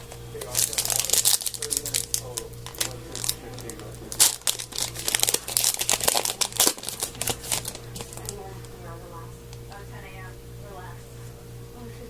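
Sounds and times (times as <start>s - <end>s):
cards and packaging crinkling: 0.0s - 8.9s.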